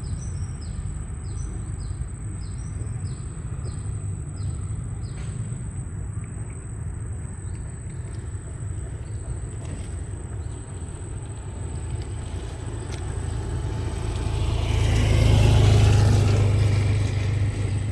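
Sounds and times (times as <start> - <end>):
motor rumbling: 7.2 - 17.9.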